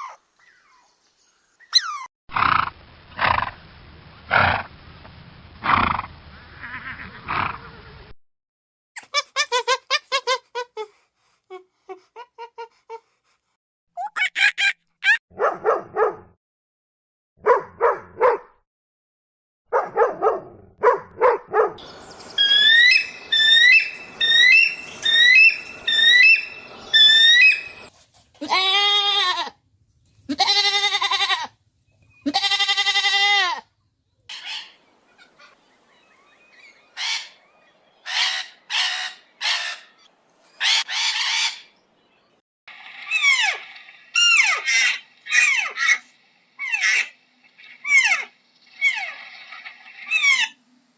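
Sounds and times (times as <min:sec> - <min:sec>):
long rising and falling animal calls: 0:21.8 - 0:27.9, 0:42.7 - 0:50.6
quick chirping: 0:21.8 - 0:27.9.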